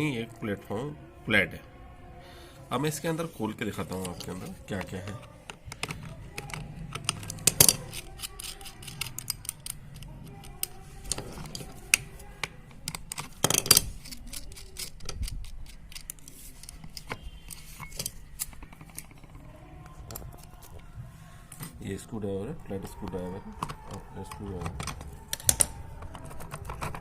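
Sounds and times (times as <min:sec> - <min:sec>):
metal parts clattering: 0:05.8 - 0:12.0.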